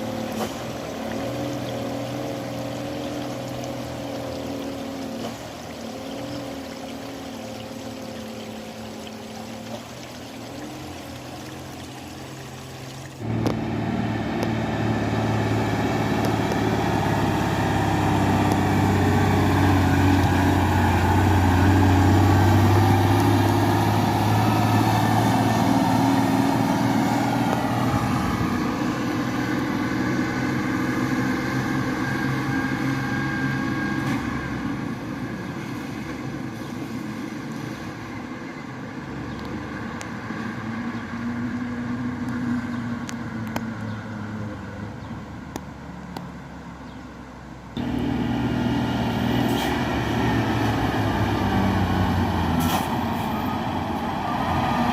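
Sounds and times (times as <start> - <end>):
dump truck driving past: 0.0 - 45.3, 47.8 - 54.9.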